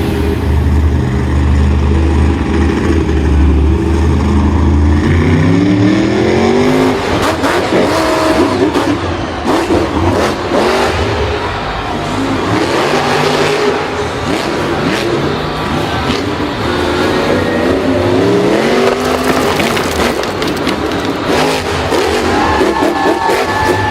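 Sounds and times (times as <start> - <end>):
vehicle engine revving: 0.0 - 23.9
knocks and rattles: 18.8 - 22.0.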